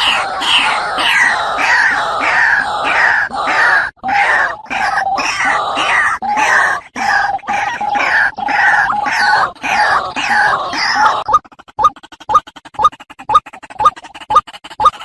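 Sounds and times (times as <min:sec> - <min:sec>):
waterhen harsh calls: 0:00.0 - 0:13.5.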